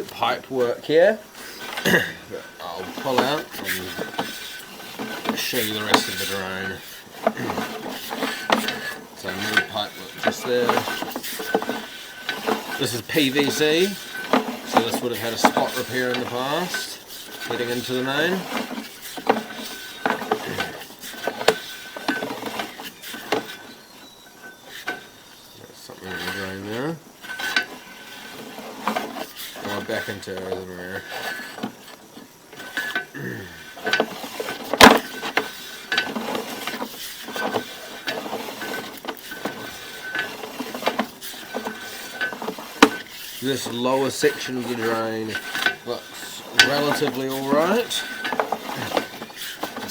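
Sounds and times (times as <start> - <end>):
faint squeaks: 0.0 - 34.4
push rod and reel rattling: 0.0 - 49.9.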